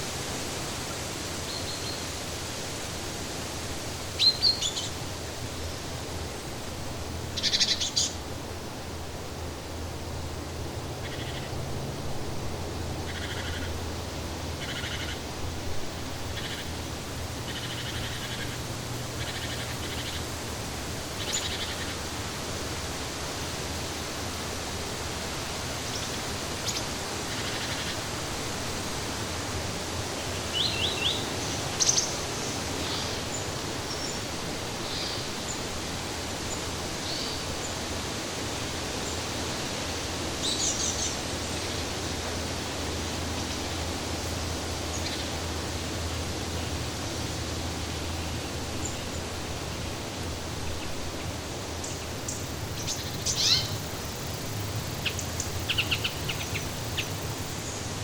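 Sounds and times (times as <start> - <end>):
steady rushing noise: 8.1 - 58.0
birds calling: 51.8 - 58.0.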